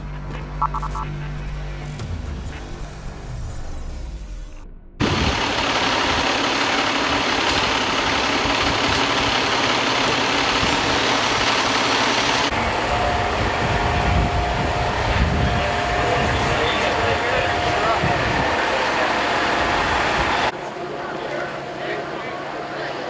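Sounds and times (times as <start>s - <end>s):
heavy vehicle engines running: 5.0s - 23.0s.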